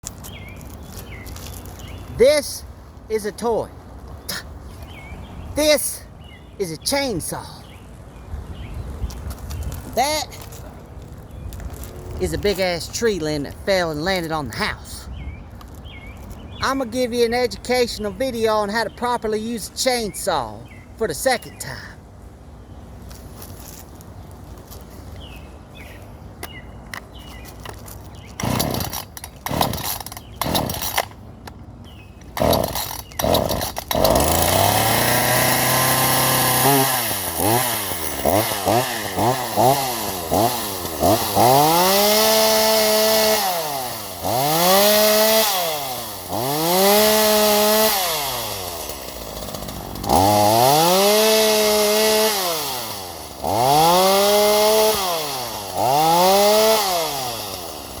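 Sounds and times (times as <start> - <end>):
chainsaw starter rope pulls: 27.2 - 31.3, 32.2 - 58.0
chainsaw cutting wood: 27.3 - 31.2, 32.2 - 58.0
chainsaw engine revving: 28.3 - 31.2, 32.3 - 58.0.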